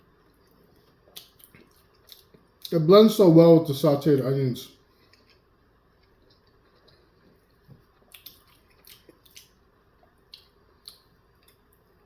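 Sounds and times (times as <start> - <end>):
wet chewing and mouth smacks: 0.1 - 2.7, 4.9 - 11.8
soft mouth clicks: 8.1 - 9.5, 10.3 - 11.6.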